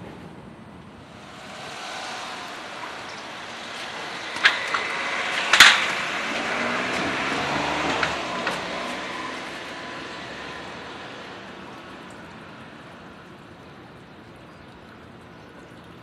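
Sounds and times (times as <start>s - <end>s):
electric train running on rails: 0.0s - 14.4s
sharp wheel clack: 1.1s - 11.4s.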